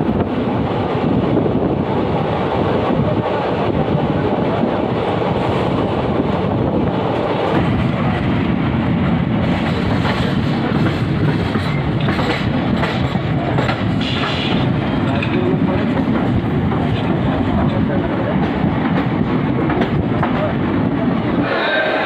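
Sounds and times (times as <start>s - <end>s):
train wheels rumbling on track: 0.0s - 22.0s.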